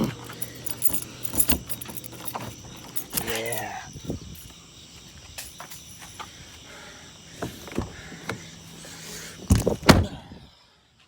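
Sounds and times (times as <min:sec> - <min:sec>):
car door slamming: 0:09.5 - 0:10.2.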